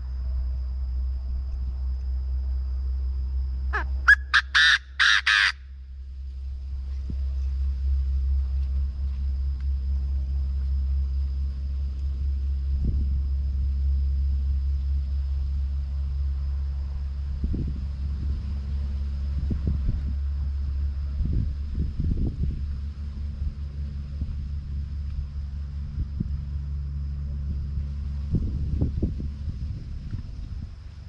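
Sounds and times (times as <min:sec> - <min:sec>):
bird calling harshly: 0:03.7 - 0:05.6
low rumble: 0:05.6 - 0:31.0.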